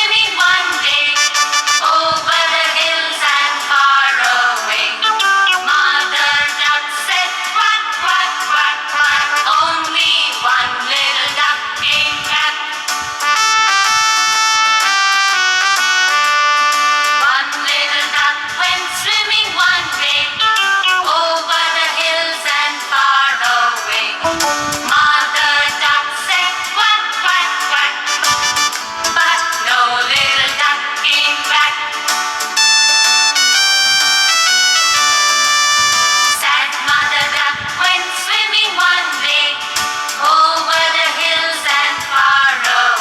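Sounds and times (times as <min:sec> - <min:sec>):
music backing track: 0:00.0 - 0:18.2, 0:19.1 - 0:22.6, 0:24.0 - 0:37.5
upbeat song with sung melody: 0:00.0 - 0:43.0
high voice singing: 0:24.2 - 0:25.6.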